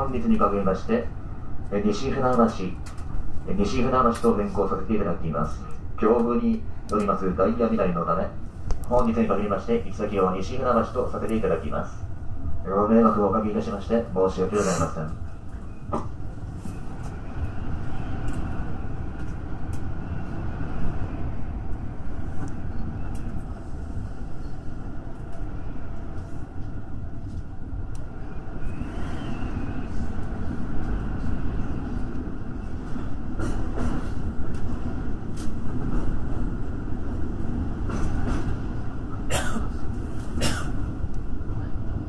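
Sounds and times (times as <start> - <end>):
train wheels rumbling on rail: 0.0 - 42.0.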